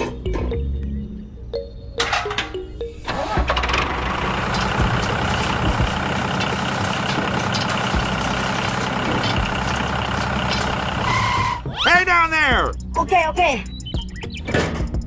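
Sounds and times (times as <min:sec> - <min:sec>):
engine starting and rumbling: 0:03.0 - 0:11.8.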